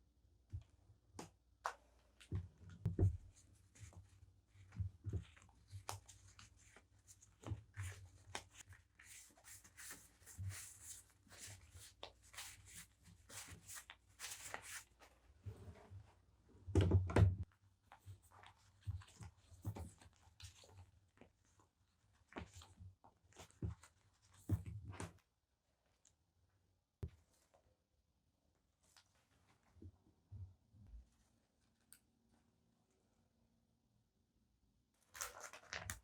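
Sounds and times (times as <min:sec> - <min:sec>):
crinkly packaging rustle: 0:35.0 - 0:36.0.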